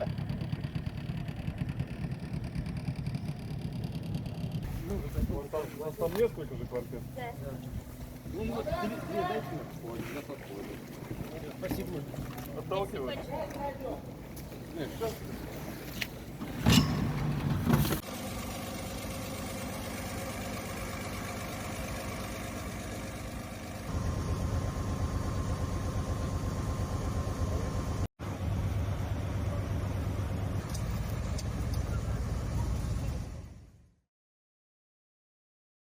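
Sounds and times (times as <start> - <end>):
engine running: 0.0 - 33.9.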